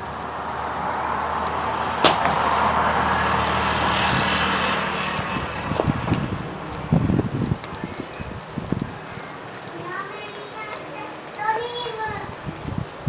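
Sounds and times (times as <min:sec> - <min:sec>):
vehicle passing by: 0:00.0 - 0:09.1.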